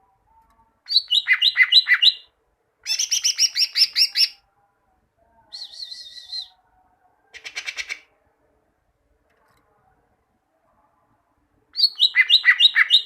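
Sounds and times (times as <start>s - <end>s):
bird singing down-slurred chirps: 0.9s - 2.3s.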